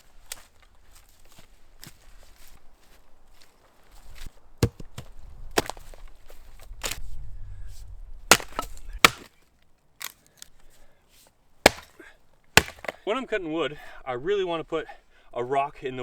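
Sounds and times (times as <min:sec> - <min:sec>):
axe chopping wood: 0:04.6 - 0:06.0, 0:06.7 - 0:07.0, 0:08.3 - 0:09.4, 0:10.0 - 0:10.2, 0:11.6 - 0:12.0, 0:12.6 - 0:13.0.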